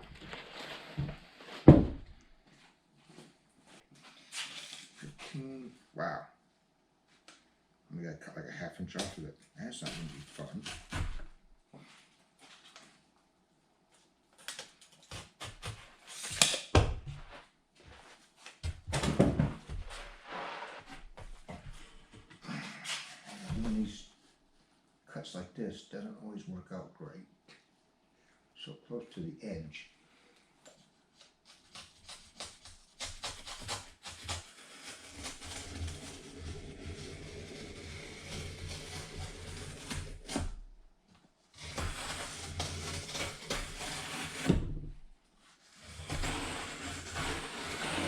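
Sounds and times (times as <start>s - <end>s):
rough rubbing noise: 9.0s - 11.3s, 19.7s - 24.2s, 31.8s - 40.6s, 41.6s - 44.9s, 45.7s - 48.0s.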